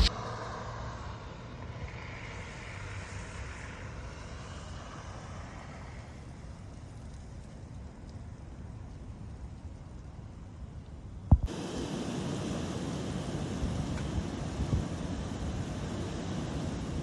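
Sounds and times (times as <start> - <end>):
low rumble: 0.0 - 0.7
hiss of vehicle passing: 0.0 - 8.0, 11.4 - 17.0.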